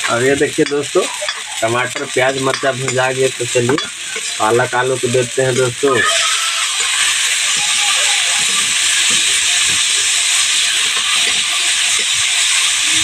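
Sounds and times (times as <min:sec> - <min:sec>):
vegetables sizzling in hot oil: 0:00.0 - 0:13.0
spatula stirring: 0:00.5 - 0:13.0.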